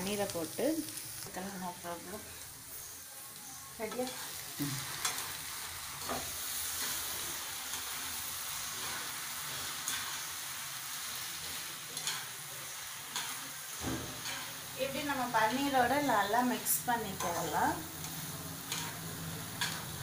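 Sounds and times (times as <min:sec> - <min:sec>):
food sizzling in a frying pan: 0:00.0 - 0:20.0
metal spoon scraping a pan: 0:03.8 - 0:10.4, 0:11.2 - 0:20.0.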